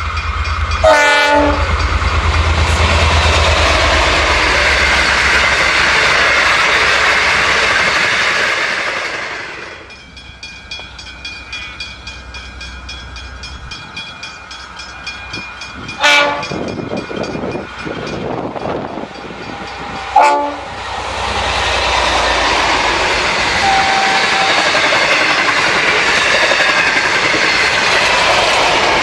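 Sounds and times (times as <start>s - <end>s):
train carriages rushing past: 0.0s - 29.0s
train wheel clatter: 0.0s - 29.0s
locomotive horn blast: 0.8s - 1.9s, 16.0s - 16.6s, 20.1s - 20.8s, 23.5s - 24.6s.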